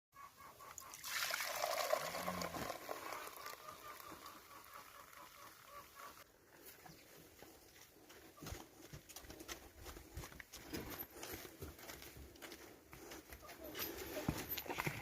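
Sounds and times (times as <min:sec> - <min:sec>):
milk splashing into a pail: 0:00.8 - 0:04.5.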